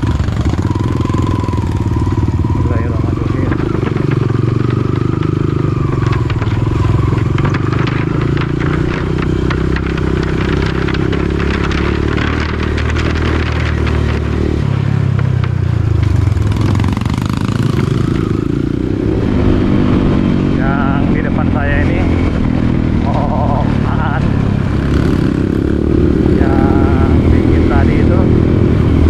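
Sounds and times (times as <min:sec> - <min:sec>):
dirt bike engine running: 0:00.0 - 0:29.0
rattling and clattering: 0:02.4 - 0:18.8.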